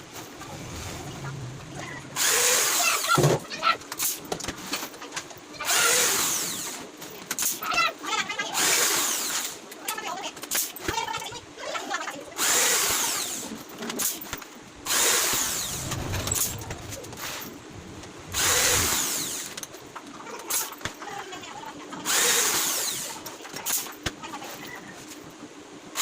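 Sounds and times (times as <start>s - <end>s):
power drill bursts: 2.2s - 3.1s, 14.9s - 16.6s, 18.4s - 19.6s, 22.1s - 23.1s.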